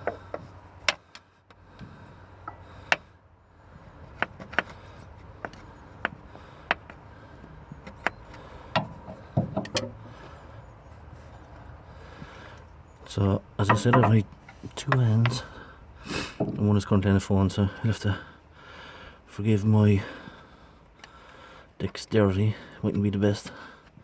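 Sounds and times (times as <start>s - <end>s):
metal tool scraping and tapping: 13.6s - 14.2s.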